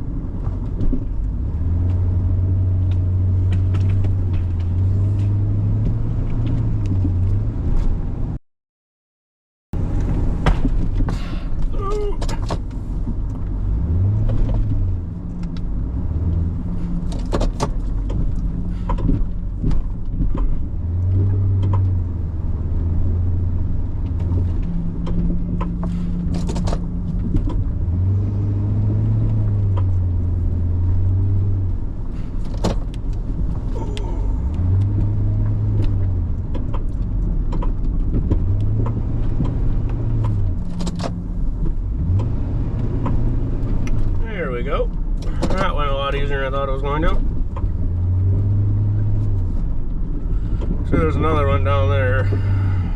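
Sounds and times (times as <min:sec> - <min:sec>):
knocks and clunks: 0:00.4 - 0:08.0, 0:09.8 - 0:22.2, 0:23.8 - 0:28.2, 0:32.2 - 0:46.2
truck engine revving: 0:01.4 - 0:07.7, 0:13.6 - 0:19.1, 0:20.3 - 0:32.3, 0:33.5 - 0:36.5, 0:38.1 - 0:49.7.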